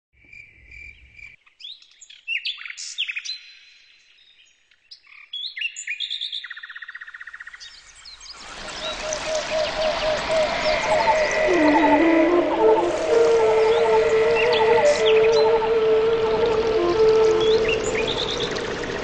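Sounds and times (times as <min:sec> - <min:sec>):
birds chirping and whistling: 0:08.6 - 0:19.0
bird trill: 0:08.7 - 0:19.0.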